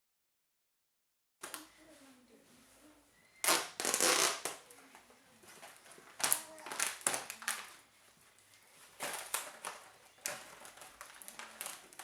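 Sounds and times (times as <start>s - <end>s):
plastic packaging crinkling: 3.4s - 4.6s, 5.6s - 7.8s, 9.0s - 12.0s.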